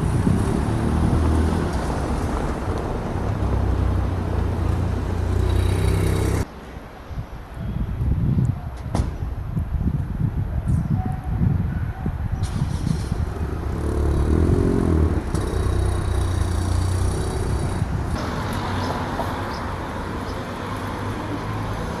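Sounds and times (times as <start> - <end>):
vehicles driving past: 0.0 - 7.0, 12.4 - 22.0.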